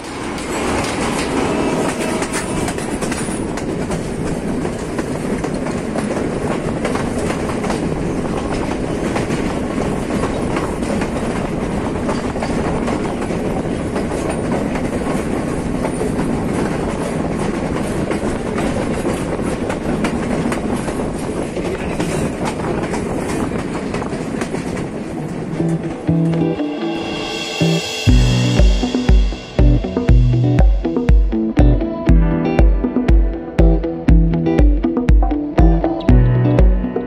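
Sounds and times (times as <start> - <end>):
train wheels clickety-clack: 0.0 - 25.8.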